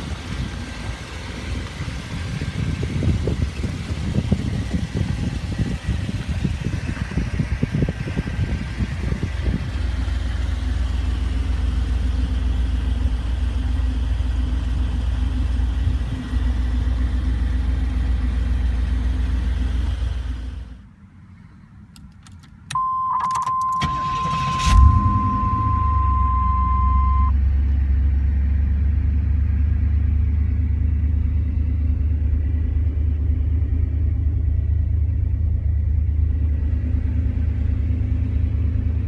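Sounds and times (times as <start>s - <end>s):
car engine idling: 0.0s - 21.9s, 23.8s - 39.0s
high warning tone: 22.7s - 27.4s
engine starting: 23.8s - 25.6s.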